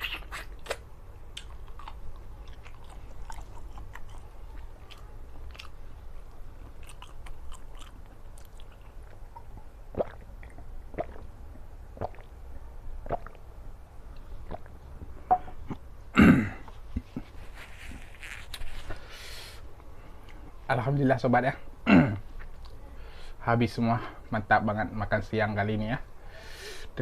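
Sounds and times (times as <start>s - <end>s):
wet mouth clicks: 0.0s - 5.8s, 6.8s - 11.3s, 12.0s - 12.3s, 13.0s - 13.4s
person chewing: 0.0s - 11.2s.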